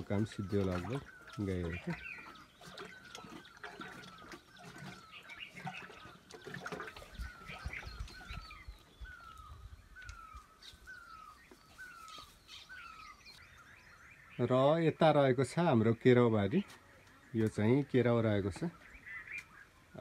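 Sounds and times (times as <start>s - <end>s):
birds chirping high: 0.0s - 20.0s.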